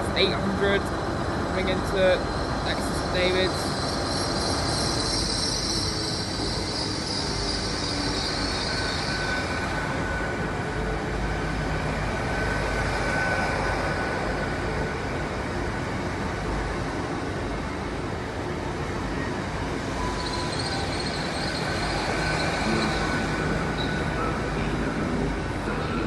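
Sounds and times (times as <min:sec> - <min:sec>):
high squeal of train: 0:00.0 - 0:26.0
train rail rumble: 0:00.0 - 0:26.0
thin whistling tone: 0:02.1 - 0:11.0, 0:19.1 - 0:26.0.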